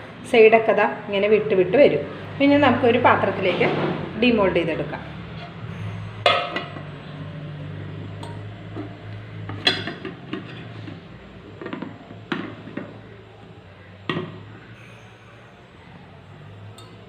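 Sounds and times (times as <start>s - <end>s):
dishes and pan clinking: 6.2s - 6.9s, 8.2s - 11.0s.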